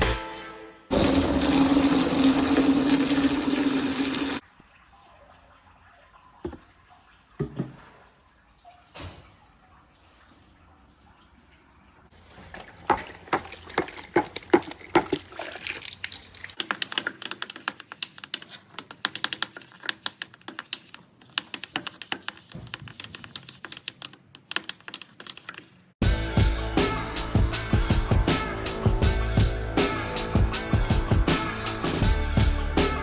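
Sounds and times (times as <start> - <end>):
clicks and water splashes: 0.9 - 20.9.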